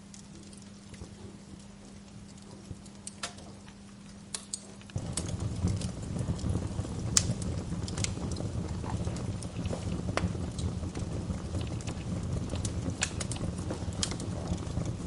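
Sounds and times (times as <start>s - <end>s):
wood fire crackling and popping: 0.0s - 15.0s
low rumble: 5.0s - 15.0s.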